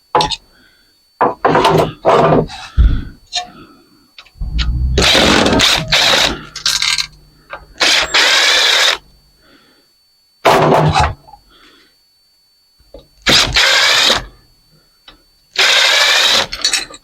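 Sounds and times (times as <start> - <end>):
power drill running: 15.6 - 16.5.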